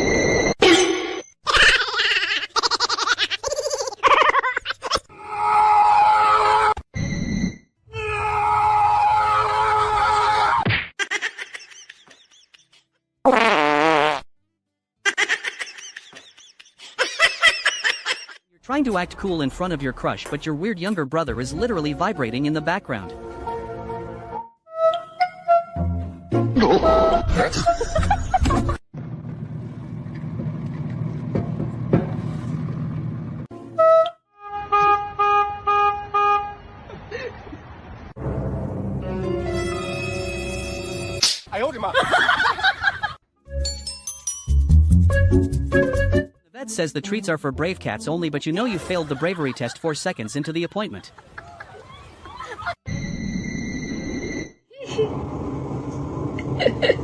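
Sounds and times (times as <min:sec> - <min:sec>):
fart sound effect: 0:13.3 - 0:14.3
background music: 0:21.2 - 0:27.3, 0:43.5 - 0:49.2
horn tooting: 0:33.6 - 0:36.9.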